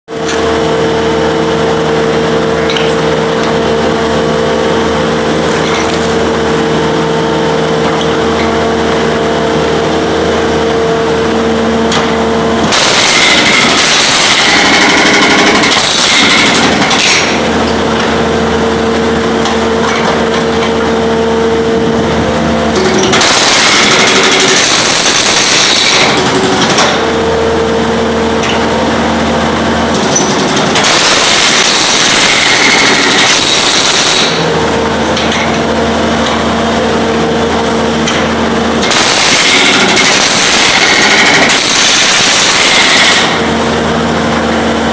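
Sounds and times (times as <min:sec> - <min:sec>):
steady machine drone: 0:00.1 - 0:44.9
jackhammer breaking concrete: 0:05.4 - 0:06.3, 0:11.9 - 0:18.1, 0:22.7 - 0:27.2, 0:29.8 - 0:36.4, 0:37.8 - 0:43.8.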